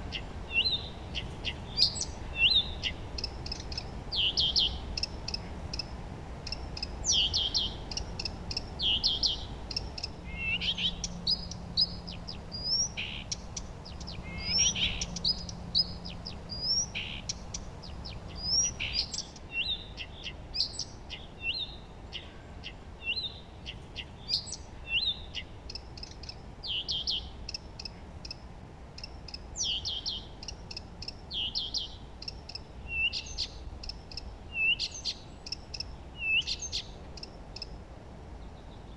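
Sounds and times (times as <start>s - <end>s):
low background rumble: 0.0s - 20.0s
songbirds chirping and trilling: 0.0s - 38.9s.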